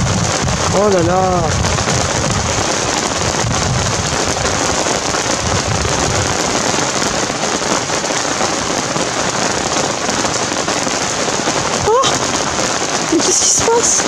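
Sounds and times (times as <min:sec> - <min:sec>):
heavy rain: 0:00.0 - 0:14.0
low thunder rumble: 0:00.0 - 0:14.0.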